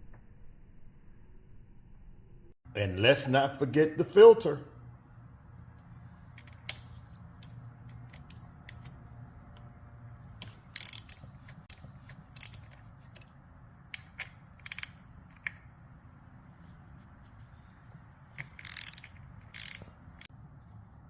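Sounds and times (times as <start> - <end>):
socket ratchet clicking: 6.3 - 9.0, 10.4 - 15.7, 18.3 - 20.3.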